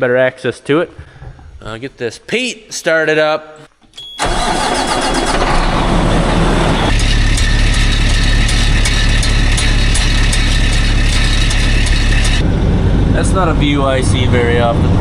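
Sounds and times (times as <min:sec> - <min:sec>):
diesel truck engine starting: 0:04.1 - 0:15.0
diesel engine idling: 0:04.2 - 0:13.9.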